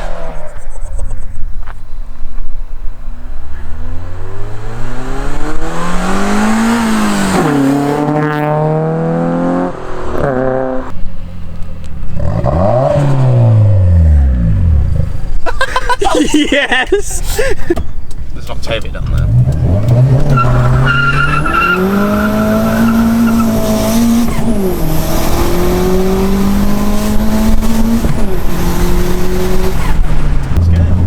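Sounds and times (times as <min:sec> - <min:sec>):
car engine accelerating hard: 0:03.2 - 0:11.0, 0:12.0 - 0:15.2, 0:18.2 - 0:31.0.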